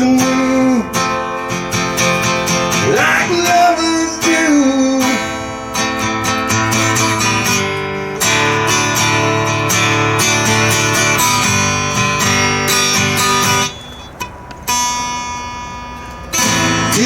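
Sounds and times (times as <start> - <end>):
person singing: 0.0 - 1.4, 2.7 - 5.8
acoustic guitar strumming: 0.0 - 17.0.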